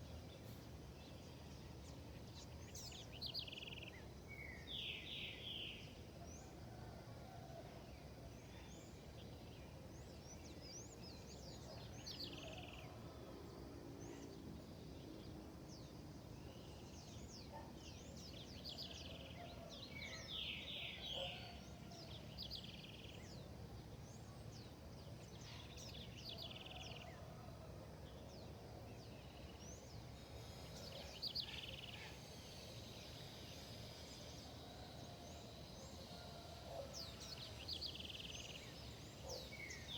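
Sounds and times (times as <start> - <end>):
birds chirping: 29.2 - 39.9.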